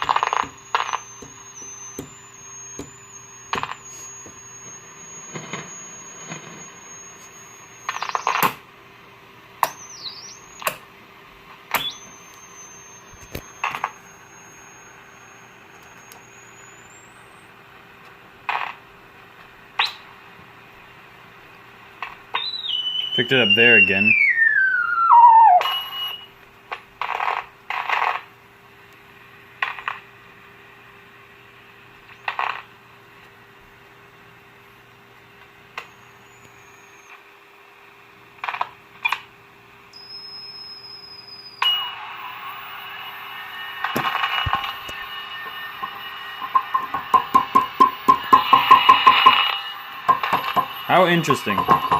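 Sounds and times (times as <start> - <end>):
steady high tone: 0.0 - 8.4, 11.7 - 17.6, 22.6 - 26.4, 40.0 - 51.9
high heterodyne whistle: 0.0 - 8.6, 9.6 - 10.8, 11.7 - 17.6, 22.4 - 26.3, 35.8 - 37.1, 39.9 - 51.9
radio static hiss: 0.0 - 22.3, 23.0 - 24.2, 29.0 - 37.3, 41.6 - 51.9
static crackles: 0.0 - 51.9
low hum: 40.0 - 50.9.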